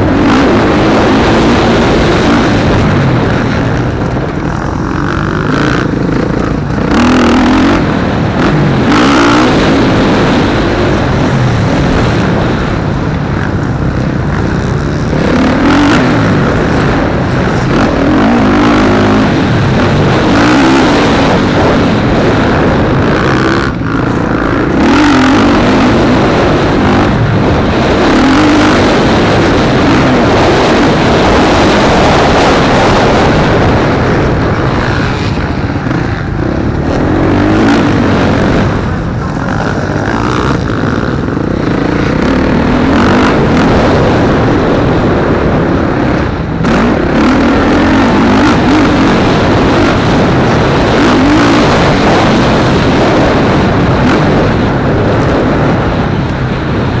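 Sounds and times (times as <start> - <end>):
motocross bike engines revving: 0.0 - 57.0.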